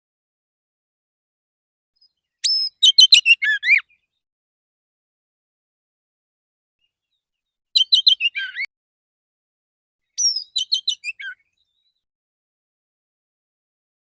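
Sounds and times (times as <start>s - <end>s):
bird singing whistled notes: 2.0s - 4.2s, 7.8s - 8.7s, 10.0s - 12.1s.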